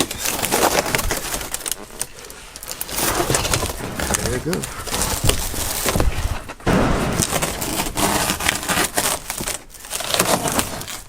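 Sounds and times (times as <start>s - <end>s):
crackling and tearing headliner: 0.0s - 11.0s
knocks: 3.4s - 9.3s.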